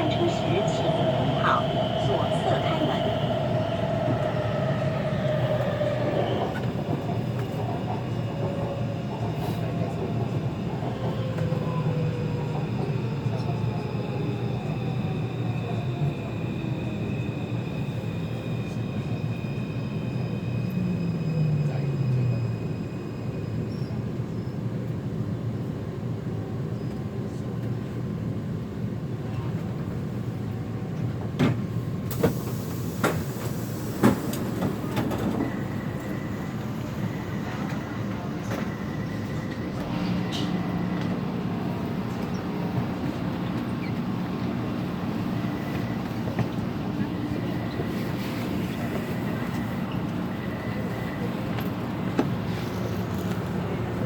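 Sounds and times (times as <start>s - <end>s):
traction motors whining: 0.0s - 7.7s.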